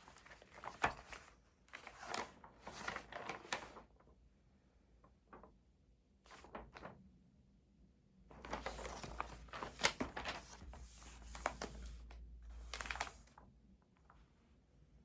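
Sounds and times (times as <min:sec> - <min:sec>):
paper rustling and crinkling: 0:00.0 - 0:04.1, 0:06.3 - 0:07.0, 0:08.3 - 0:13.4.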